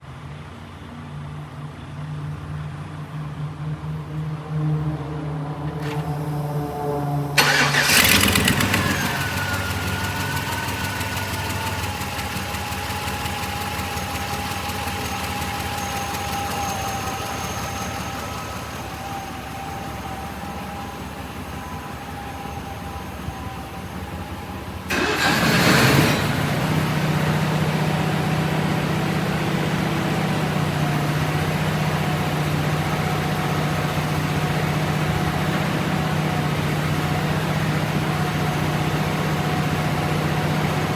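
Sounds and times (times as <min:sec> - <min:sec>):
engine whine: 0:01.7 - 0:40.9
truck engine cranking and idling: 0:02.4 - 0:40.9
loud engine burst: 0:05.8 - 0:13.0, 0:24.9 - 0:27.9.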